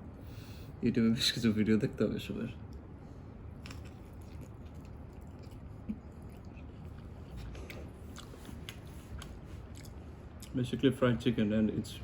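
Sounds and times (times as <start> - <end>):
person chewing crispy food: 3.5 - 10.6.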